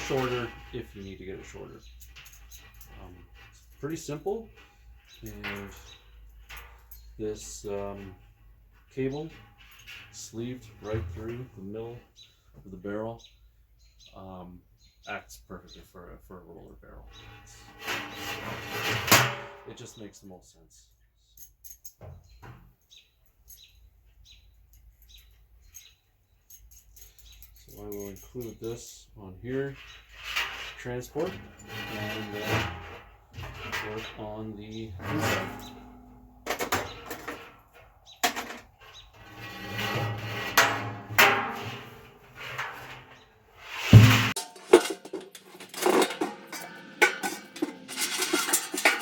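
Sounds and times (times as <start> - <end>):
metal knocks and clanks: 0.0 - 11.6, 17.2 - 19.8, 29.5 - 49.0
scraping and rustling: 0.0 - 12.3, 17.2 - 19.9, 26.5 - 49.0.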